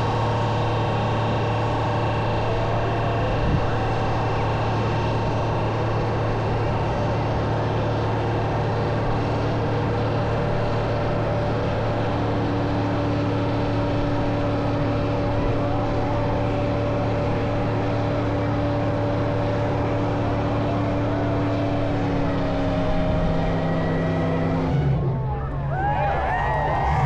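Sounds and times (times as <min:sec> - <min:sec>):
car engine running: 0:00.0 - 0:27.0.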